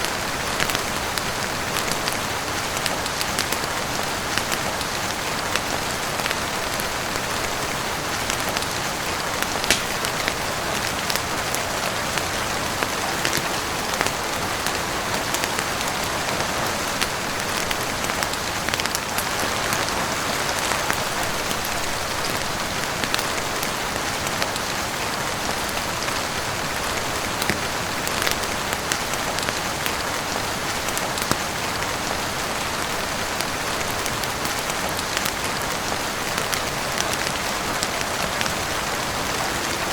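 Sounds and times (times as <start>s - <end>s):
heavy rain falling: 0.0s - 39.9s
wood fire crackling: 0.6s - 23.7s.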